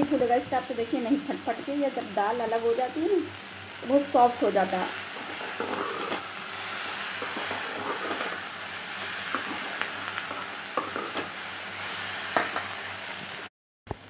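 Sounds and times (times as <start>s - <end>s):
food sizzling in oil: 0.0s - 13.5s
metal skimmer scraping pan: 7.2s - 8.4s.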